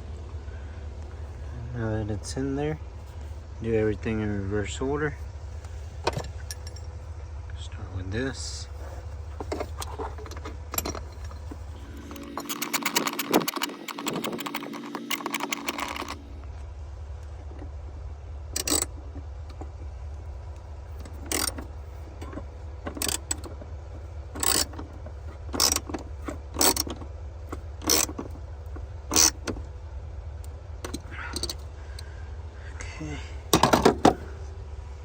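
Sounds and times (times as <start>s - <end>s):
steady low hum: 0.0s - 35.0s
ratchet wrench clicking: 10.3s - 16.2s, 18.6s - 18.9s, 21.0s - 23.5s, 24.4s - 28.4s, 29.0s - 29.6s, 30.8s - 31.7s.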